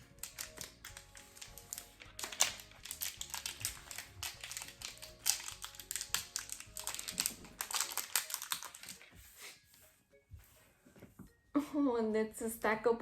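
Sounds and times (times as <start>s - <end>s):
plastic wrapping crinkling: 0.0s - 9.6s
quiet background music: 0.0s - 13.0s.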